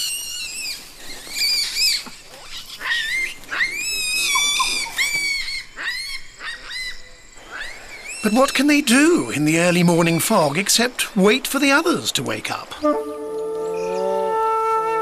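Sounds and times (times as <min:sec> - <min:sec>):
baboons giving shrill calls: 0:00.0 - 0:08.4.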